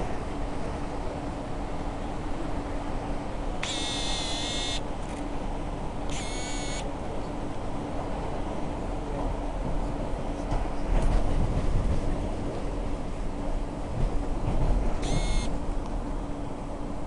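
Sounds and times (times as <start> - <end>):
train rumble inside carriage: 0.0 - 3.7, 4.8 - 17.0
high-pitched tones: 15.0 - 15.5.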